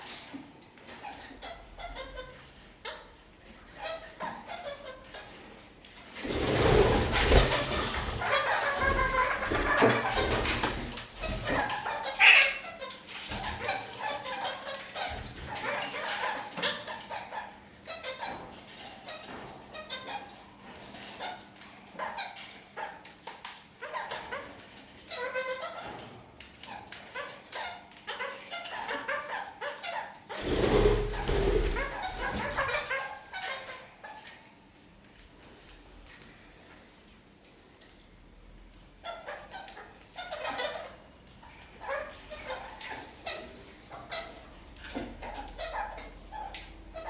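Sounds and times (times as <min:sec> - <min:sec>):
parakeets chattering: 0:07.2 - 0:18.3, 0:27.1 - 0:34.2, 0:39.0 - 0:47.0.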